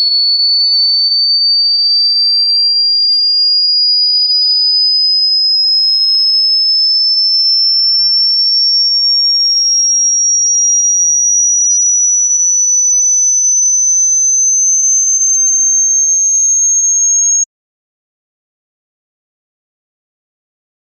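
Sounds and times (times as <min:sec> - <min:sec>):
high-pitched sine tone rising: 0:00.0 - 0:17.5.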